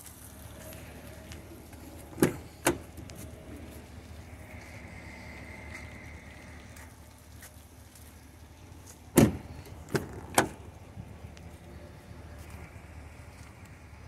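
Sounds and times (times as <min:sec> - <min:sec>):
heavy thump on vehicle: 0:09.1 - 0:10.6.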